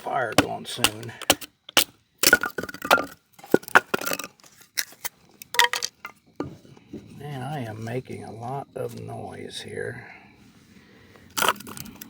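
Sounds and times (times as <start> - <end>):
hard objects clattering together: 0.0 - 6.6, 11.4 - 12.0.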